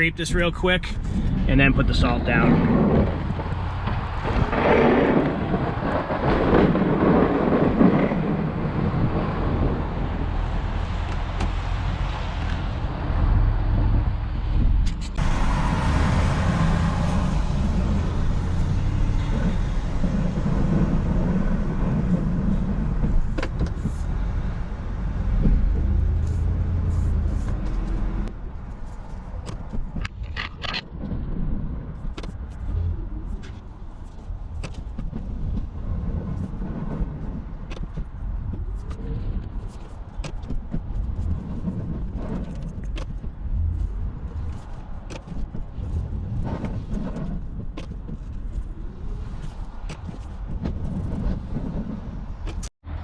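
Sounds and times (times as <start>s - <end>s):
plow scraping snow: 1.1s - 14.0s, 15.2s - 29.1s
plow truck engine running: 1.1s - 23.4s.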